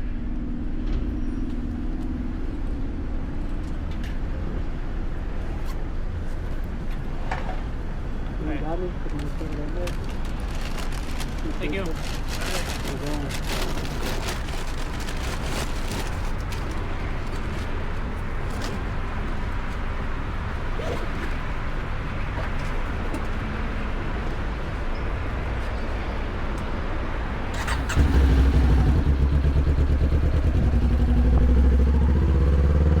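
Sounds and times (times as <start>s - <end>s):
motorcycle engine revving: 27.6s - 33.0s.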